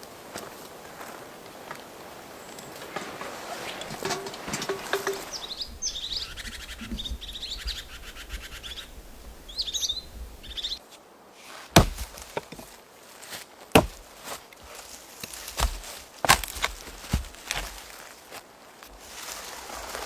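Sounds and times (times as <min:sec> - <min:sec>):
small songbirds chirping: 0:03.6 - 0:10.8
faint knocks: 0:04.0 - 0:10.6.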